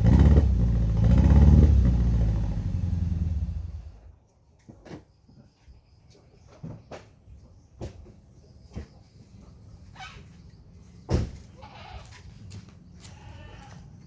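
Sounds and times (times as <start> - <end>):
animal bleating: 11.6 - 12.2, 13.0 - 13.9.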